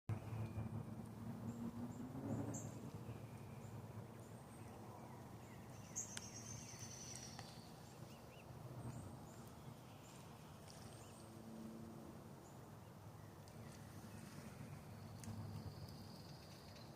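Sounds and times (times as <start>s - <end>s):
low steady hum: 0.1s - 16.9s
bird trill: 5.5s - 8.4s.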